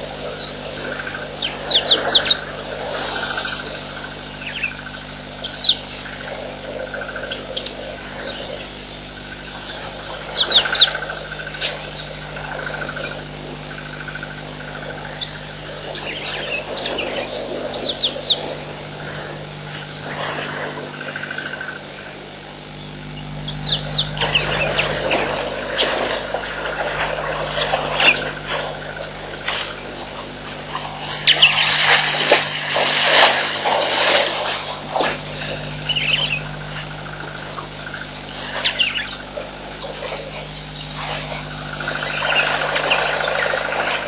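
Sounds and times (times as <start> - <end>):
birds chirping: 0.0 - 44.0
steady low hum: 0.0 - 44.0
rapid bird trill: 0.1 - 44.0.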